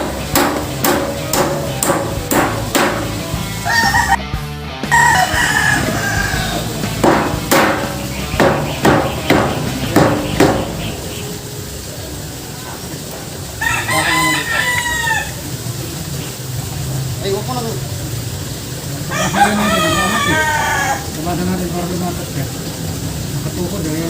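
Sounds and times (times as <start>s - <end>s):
sharp hammer blows: 0.0s - 3.3s, 6.9s - 11.2s
rooster crowing: 3.6s - 4.2s, 4.9s - 6.8s, 13.6s - 15.5s, 19.1s - 21.2s.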